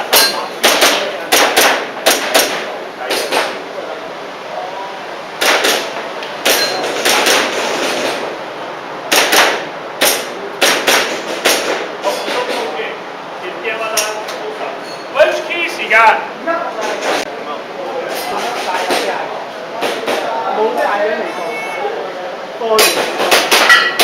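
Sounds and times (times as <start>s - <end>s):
airsoft pistol shots: 0.1s - 2.7s, 5.4s - 7.6s, 9.1s - 11.9s.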